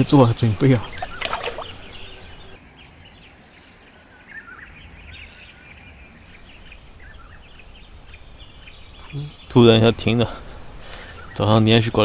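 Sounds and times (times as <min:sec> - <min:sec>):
bird chirps: 0:00.0 - 0:03.4, 0:04.0 - 0:09.6, 0:10.8 - 0:11.6
insects trilling: 0:00.0 - 0:12.0.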